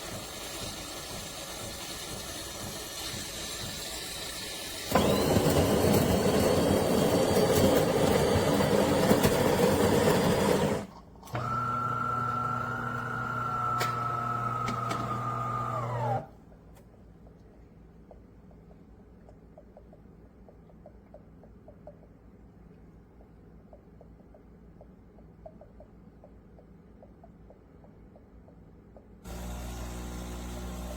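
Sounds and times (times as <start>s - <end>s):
espresso machine grinding: 4.9s - 16.3s, 29.3s - 30.9s
espresso machine humming with whine: 4.9s - 16.3s, 29.3s - 30.9s.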